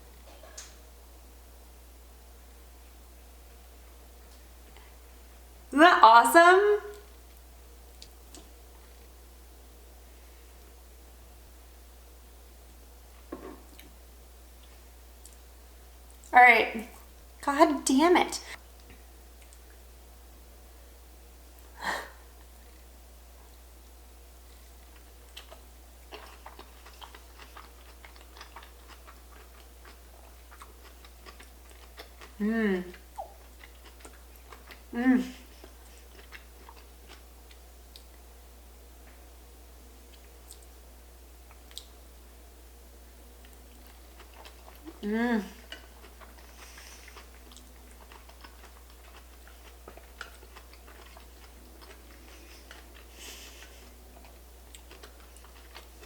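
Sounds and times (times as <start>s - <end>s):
close chewing with wet clicks: 18.8s - 19.8s, 24.8s - 34.9s, 35.5s - 38.3s, 40.0s - 40.8s, 41.4s - 42.0s, 43.4s - 45.0s, 45.6s - 56.0s.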